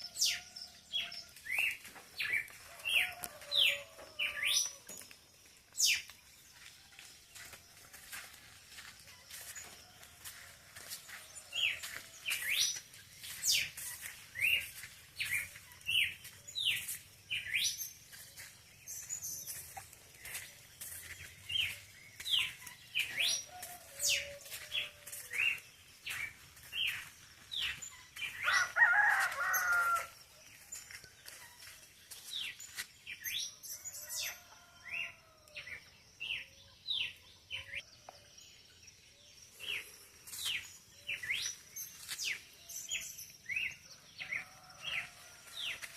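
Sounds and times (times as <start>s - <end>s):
rooster crowing: 2.6s - 4.9s, 23.2s - 25.4s, 28.4s - 30.2s, 44.2s - 45.9s.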